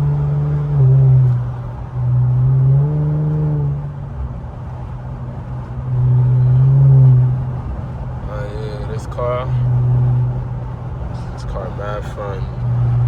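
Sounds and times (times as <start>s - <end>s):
car engine droning at cruise: 0.0s - 13.0s.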